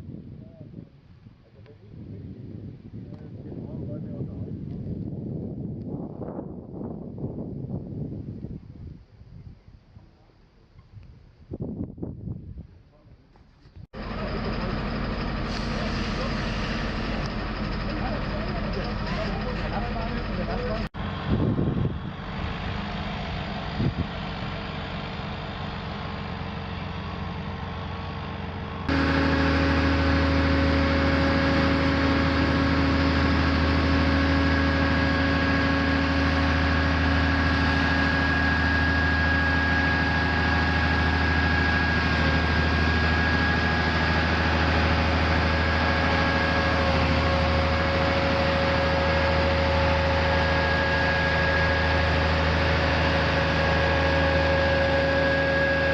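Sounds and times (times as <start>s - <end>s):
steady whine: 13.7s - 55.9s
heavy diesel engine idling: 14.0s - 55.9s.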